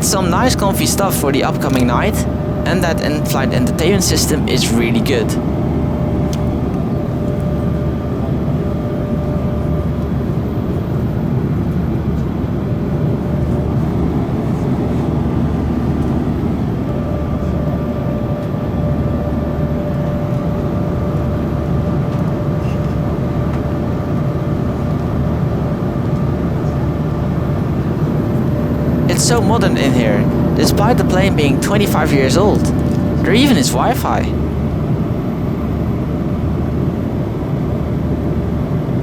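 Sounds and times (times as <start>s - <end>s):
faint steady whine: 0.0s - 5.6s
aircraft engine drone: 0.0s - 9.3s.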